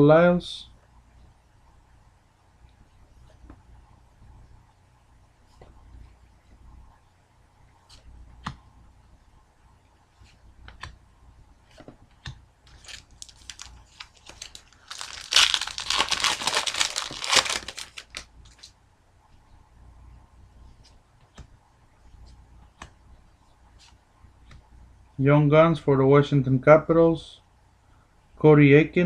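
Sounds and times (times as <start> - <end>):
card pack wrapper tearing: 12.7 - 18.7.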